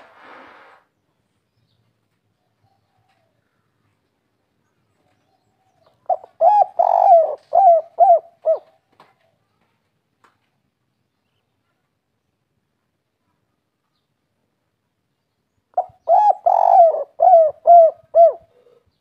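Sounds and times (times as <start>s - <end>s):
dove cooing: 5.7s - 8.8s, 15.8s - 18.8s.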